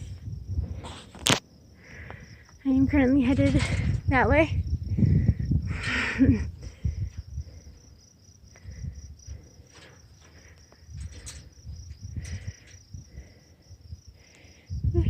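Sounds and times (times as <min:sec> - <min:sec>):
low rumbles: 0:00.0 - 0:01.1, 0:01.8 - 0:15.0
rustling noises: 0:00.0 - 0:01.4, 0:09.3 - 0:12.8
insects trilling: 0:00.0 - 0:15.0.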